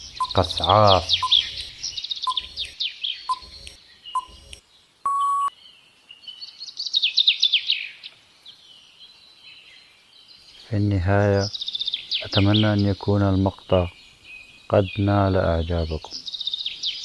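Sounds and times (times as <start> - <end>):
birdsong chirps: 0.0 - 17.0
countdown timer ticking: 0.2 - 1.4
short steady beep: 5.1 - 5.5.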